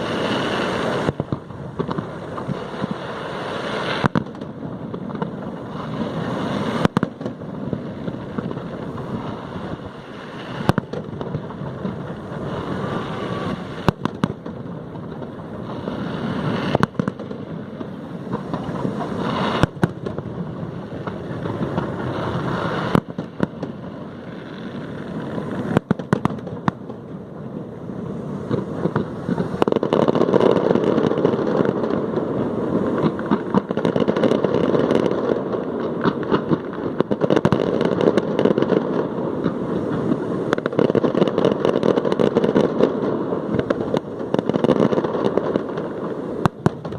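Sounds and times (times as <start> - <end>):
fireworks rumble and crackle: 0.0 - 46.9.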